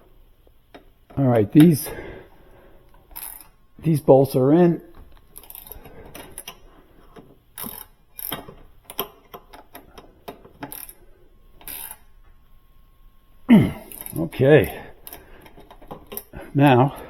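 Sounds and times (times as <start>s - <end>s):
metal clicks and ratcheting: 3.1s - 3.6s, 5.1s - 6.6s, 7.5s - 11.0s, 11.6s - 12.0s.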